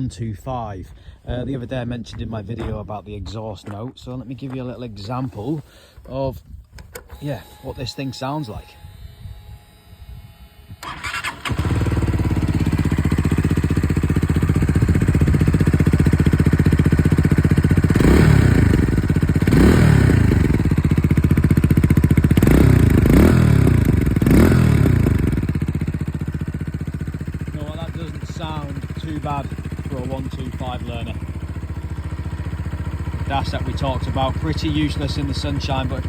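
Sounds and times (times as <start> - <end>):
motorcycle throttle blips: 0.9 - 36.0
motorcycle engine starting: 6.8 - 36.0
motorcycle idling: 8.4 - 36.0.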